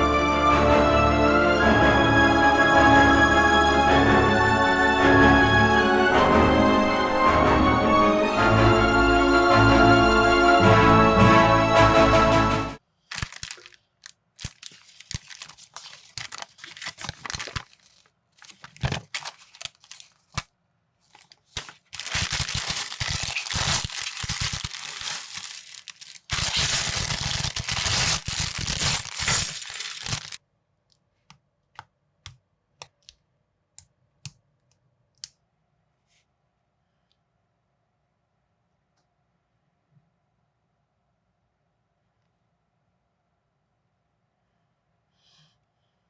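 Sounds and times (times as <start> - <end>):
plastic bags tearing and crinkling: 13.1 - 20.5, 21.1 - 30.4.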